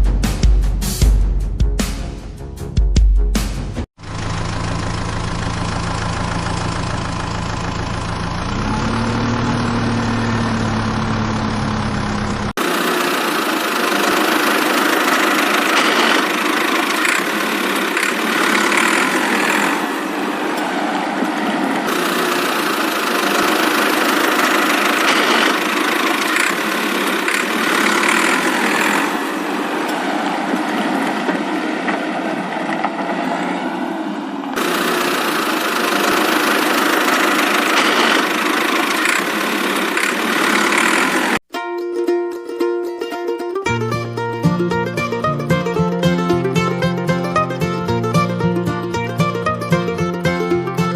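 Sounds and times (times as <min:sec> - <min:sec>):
high-pitched mechanical running sound: 0:04.0 - 0:31.5, 0:34.6 - 0:41.4
engine idling: 0:04.0 - 0:31.6, 0:34.6 - 0:41.4.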